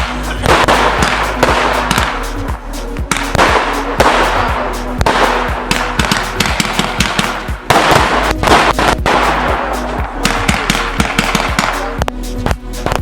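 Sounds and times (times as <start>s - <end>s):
fireworks battery firing: 0.0s - 12.1s
fireworks crackle: 0.0s - 12.2s
background music: 0.0s - 13.0s.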